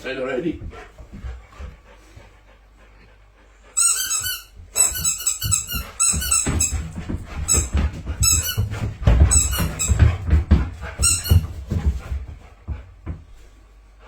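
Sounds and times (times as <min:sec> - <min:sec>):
squeaky dog toy squeaking: 0:03.8 - 0:06.9, 0:07.5 - 0:08.7, 0:09.3 - 0:10.0, 0:11.0 - 0:11.4
dog chewing thumps: 0:03.9 - 0:13.4.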